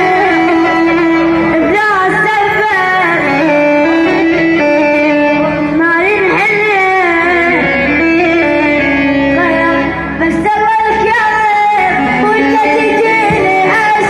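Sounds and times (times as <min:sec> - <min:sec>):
man singing: 0:00.0 - 0:09.9
instrumental backing: 0:00.0 - 0:14.0.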